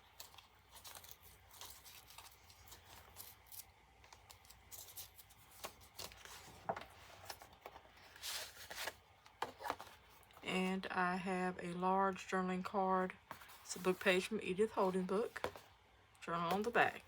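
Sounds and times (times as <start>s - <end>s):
paper pages rustling and scraping: 0.1s - 10.4s, 15.2s - 15.7s.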